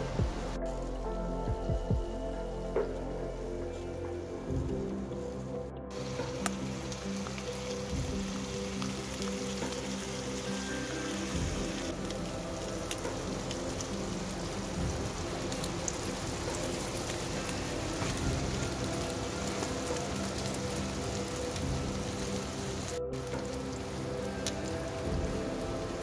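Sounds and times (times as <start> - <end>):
food sizzling in frying pan: 5.9 - 26.0.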